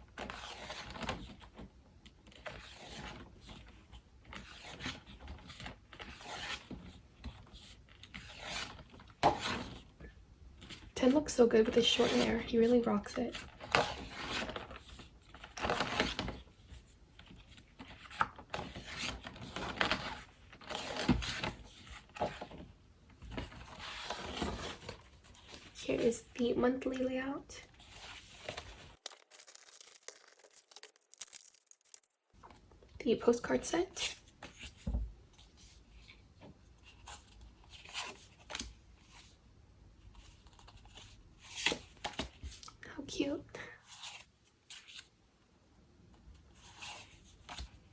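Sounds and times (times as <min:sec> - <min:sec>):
paper pages rustling: 0:27.7 - 0:32.6.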